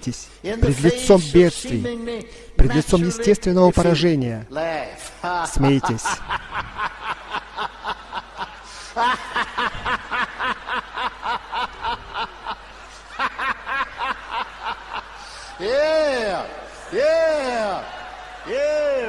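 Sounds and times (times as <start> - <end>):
person laughing rhythmically: 5.6 - 17.7.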